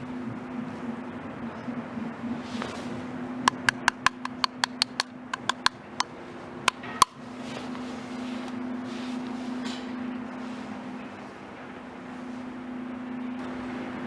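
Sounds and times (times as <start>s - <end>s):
sharp metallic clicks: 3.5s - 5.8s, 6.7s - 7.2s.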